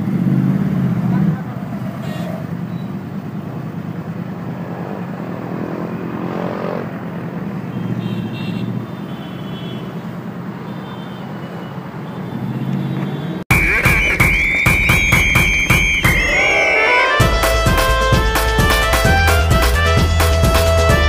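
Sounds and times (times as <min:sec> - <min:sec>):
motorcycle engines revving: 0:00.0 - 0:09.2, 0:09.8 - 0:21.0.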